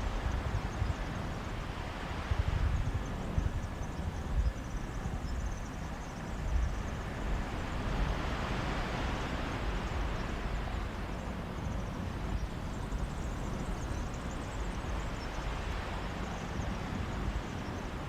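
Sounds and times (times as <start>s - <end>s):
wind rumbling on microphone: 0.0s - 18.0s
sea waves washing on beach: 6.2s - 18.0s.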